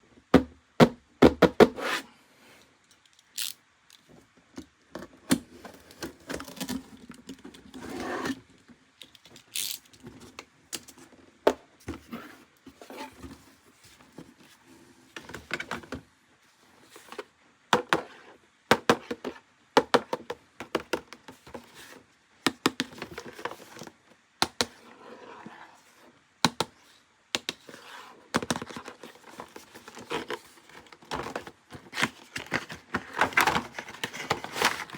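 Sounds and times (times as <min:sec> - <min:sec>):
packaging scraping and rustling: 0:27.7 - 0:34.9.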